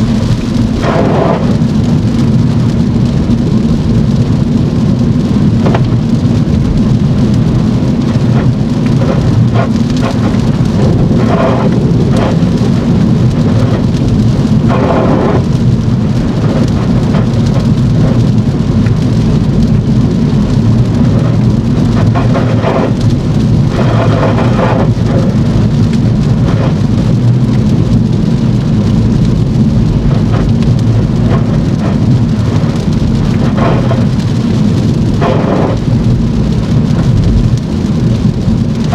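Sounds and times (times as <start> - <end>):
heavy rain on a car: 0.0 - 38.9
road noise rumble: 0.0 - 38.9.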